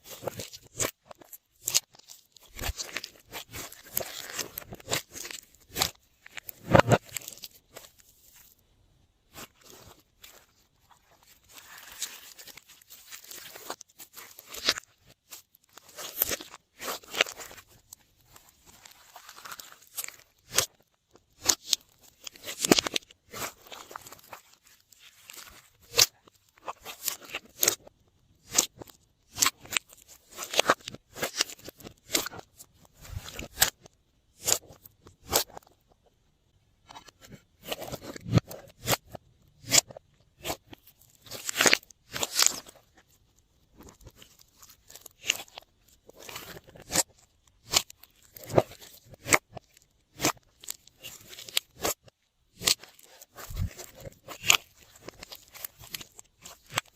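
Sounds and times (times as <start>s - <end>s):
slime clicking and squelching: 11.0s - 35.7s, 36.8s - 56.9s.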